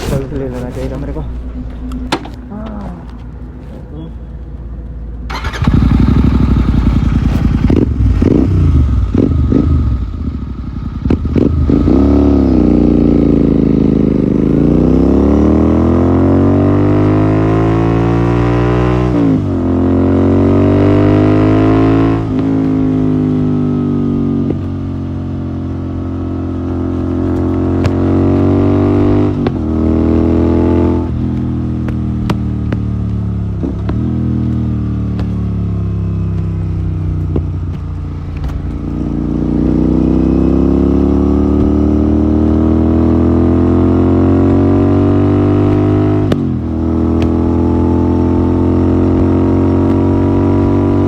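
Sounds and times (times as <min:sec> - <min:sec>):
motorcycle engine accelerating: 0:05.2 - 0:51.0
motorcycle throttle blips: 0:05.3 - 0:12.0, 0:26.0 - 0:51.0.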